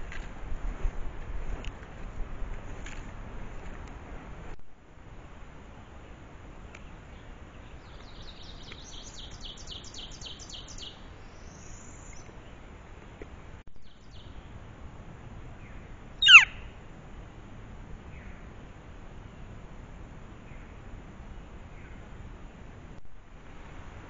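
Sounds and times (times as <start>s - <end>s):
birds calling: 6.7s - 12.6s, 15.6s - 16.8s
sharp downward bird call: 16.2s - 16.8s.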